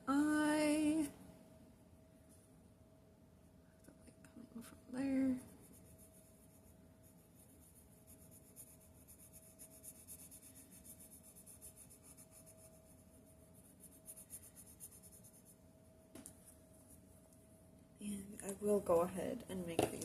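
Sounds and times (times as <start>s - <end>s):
faint hum: 0.0s - 20.0s
drawing tool scratching paper: 5.6s - 15.5s.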